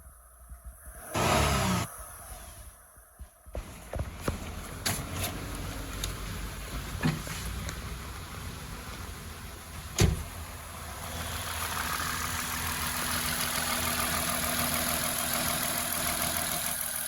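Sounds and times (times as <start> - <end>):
car engine idling: 4.2 - 17.0.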